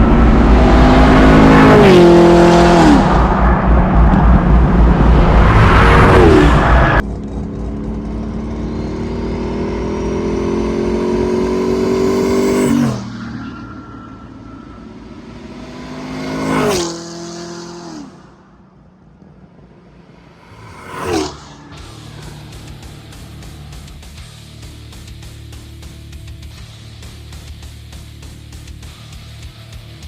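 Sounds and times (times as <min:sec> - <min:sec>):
car engine accelerating: 0:00.0 - 0:30.0
turbo whoosh: 0:19.9 - 0:24.9.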